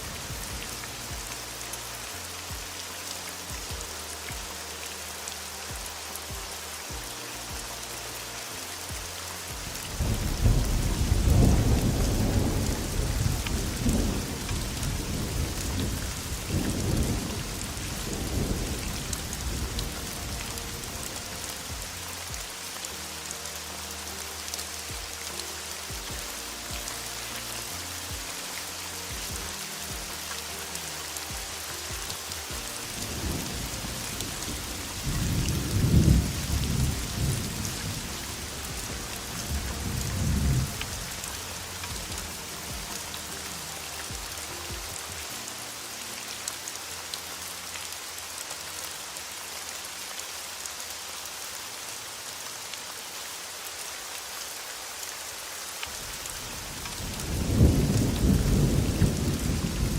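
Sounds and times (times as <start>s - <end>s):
heavy rain hissing: 0.0s - 59.9s
thunder rumbling: 9.5s - 22.3s, 31.3s - 43.2s, 56.2s - 59.9s.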